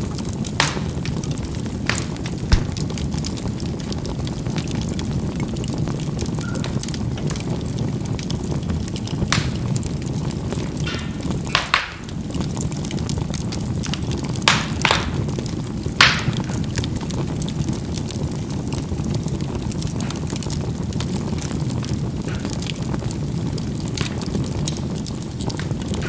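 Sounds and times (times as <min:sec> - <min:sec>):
coals popping: 0:00.0 - 0:26.0
low rumble of flame: 0:00.0 - 0:26.0
fine crackling: 0:00.4 - 0:03.1.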